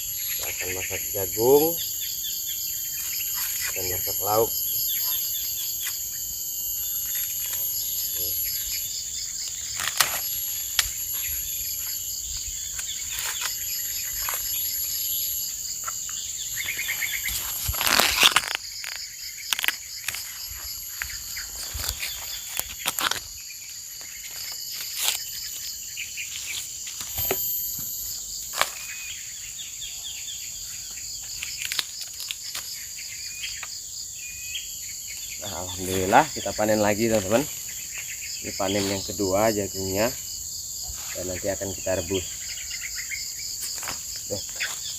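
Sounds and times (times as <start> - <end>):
birds chirping: 0.0 - 31.6, 32.3 - 40.2, 40.8 - 43.5
insects droning: 0.0 - 44.9
corn plants snapping and rustling: 16.7 - 20.3, 21.0 - 23.3, 31.4 - 32.8.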